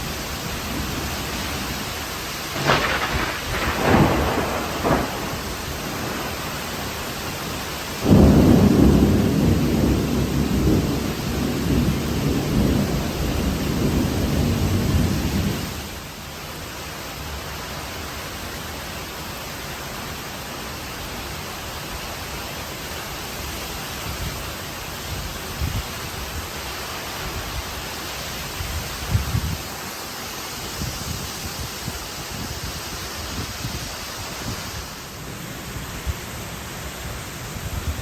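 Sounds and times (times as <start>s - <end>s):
steady rain: 0.0s - 38.0s
rolling thunder: 2.5s - 7.0s, 8.0s - 15.8s.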